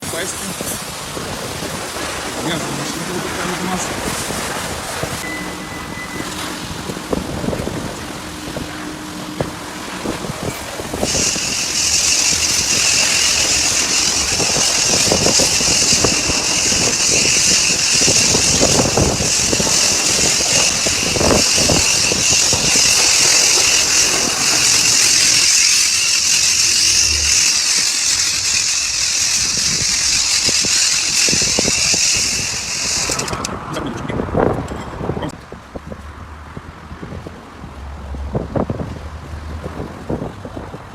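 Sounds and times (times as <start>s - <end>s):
pressure washer spraying: 5.2s - 33.5s.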